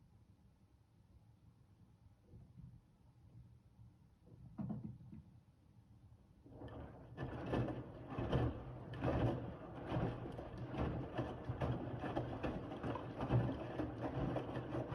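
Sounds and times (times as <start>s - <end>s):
washing machine drum turning: 6.6s - 14.9s.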